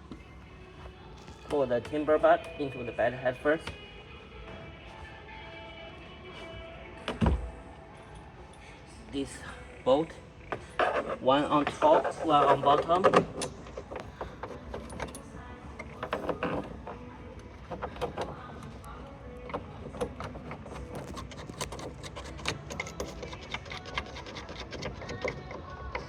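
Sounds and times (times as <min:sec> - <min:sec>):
metallic bolt clicks and rattles: 0:12.8 - 0:16.7, 0:19.5 - 0:26.0.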